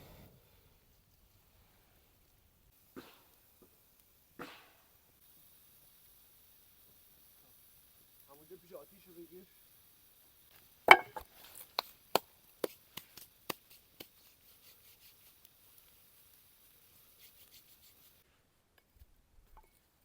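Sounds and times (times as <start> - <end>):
blade chopping wood: 10.9 - 11.3.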